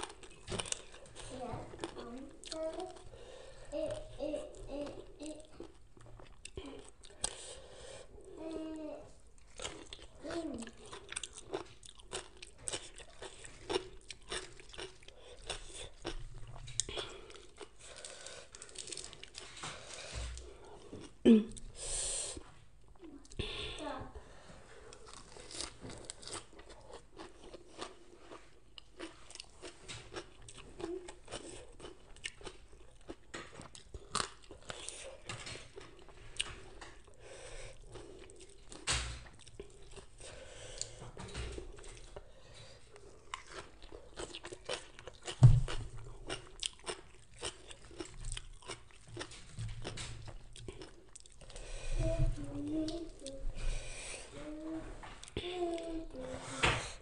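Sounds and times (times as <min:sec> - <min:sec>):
chewing crunchy raw salad: 0:09.4 - 0:21.2, 0:24.9 - 0:41.0, 0:41.7 - 0:51.7.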